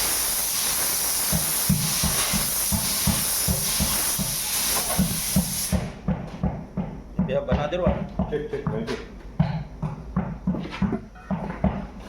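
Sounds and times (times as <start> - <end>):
compressed air hissing: 0.0 - 6.0
low regular thumping: 1.3 - 4.4, 5.0 - 12.0.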